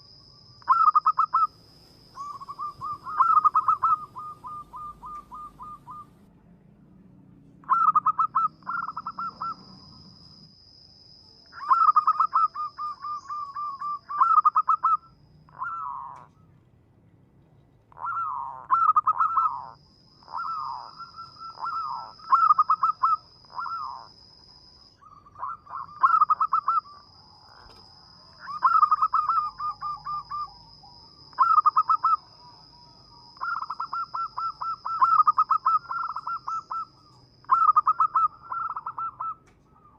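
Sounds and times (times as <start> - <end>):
dove cooing: 0.7 - 1.6, 2.2 - 6.3, 7.6 - 10.4, 11.6 - 16.6, 17.9 - 24.2, 25.0 - 27.8, 28.4 - 39.9.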